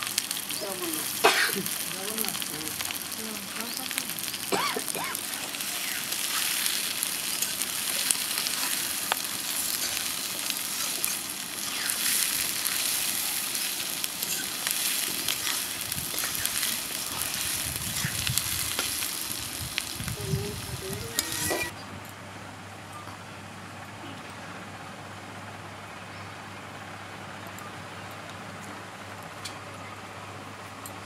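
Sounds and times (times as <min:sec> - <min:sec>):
food frying in hot oil: 0:00.0 - 0:21.7.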